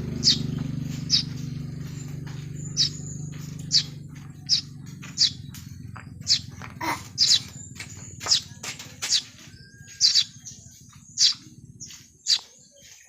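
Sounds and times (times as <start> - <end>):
low rumble: 0.0 - 8.6
small birds chirping: 0.0 - 13.0.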